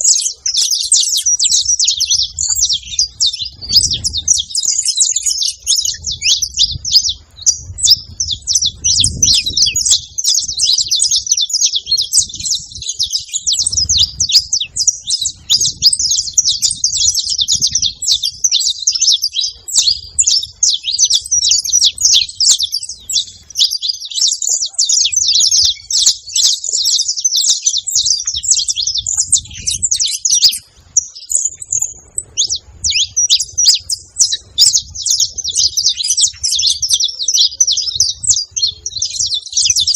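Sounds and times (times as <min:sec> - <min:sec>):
finch chirping and singing: 0:00.0 - 0:39.9.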